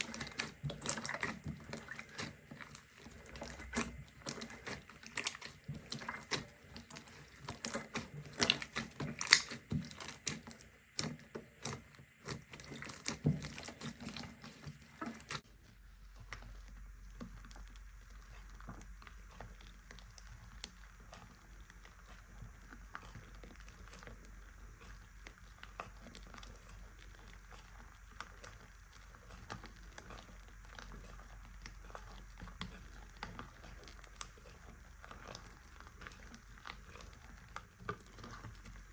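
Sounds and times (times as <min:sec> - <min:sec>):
slime squished by hand: 0:00.0 - 0:15.4.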